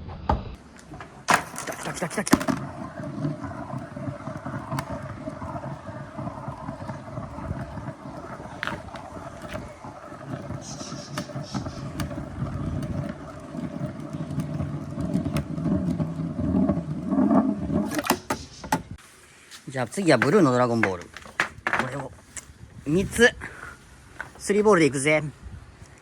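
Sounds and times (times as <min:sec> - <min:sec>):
ball rolling on track: 0:00.0 - 0:19.0, 0:20.0 - 0:22.4
ball clicking against track: 0:00.8 - 0:19.0.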